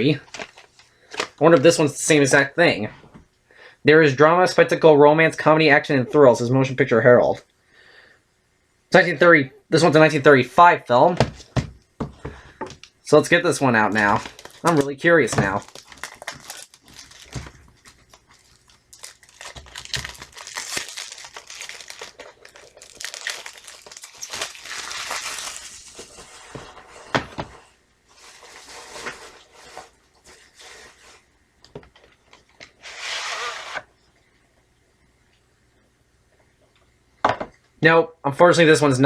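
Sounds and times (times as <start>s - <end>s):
plastic wrap crinkling and tearing: 0.1s - 1.6s, 13.8s - 26.4s.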